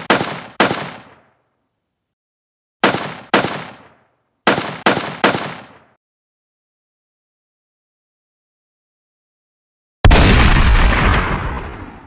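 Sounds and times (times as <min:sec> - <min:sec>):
gunshots: 0:00.0 - 0:01.3, 0:02.8 - 0:05.9.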